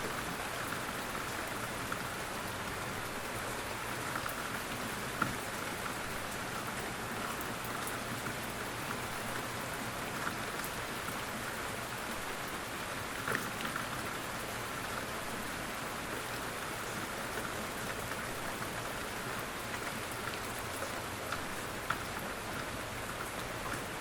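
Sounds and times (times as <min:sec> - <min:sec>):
gentle rain falling: 0:00.0 - 0:24.0.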